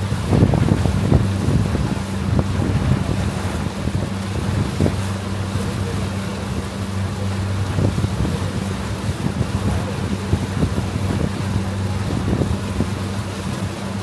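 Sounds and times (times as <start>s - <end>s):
boat engine droning: 0.0s - 14.0s
wind noise on microphone: 0.0s - 14.0s.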